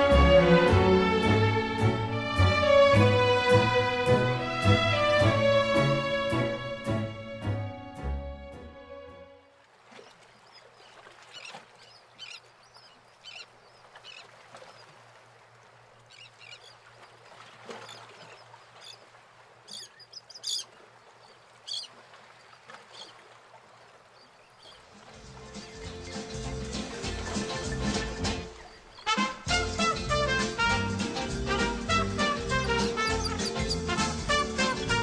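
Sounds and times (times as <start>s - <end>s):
faint high bird calls: 10.0s - 15.0s, 16.1s - 22.0s.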